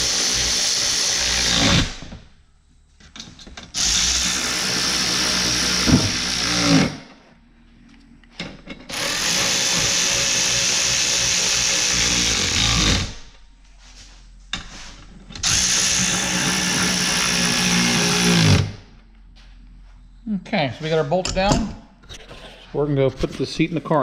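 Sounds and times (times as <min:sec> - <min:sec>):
power drill driving bolts: 0:00.0 - 0:02.2, 0:03.2 - 0:07.1, 0:08.7 - 0:13.3, 0:15.3 - 0:18.8.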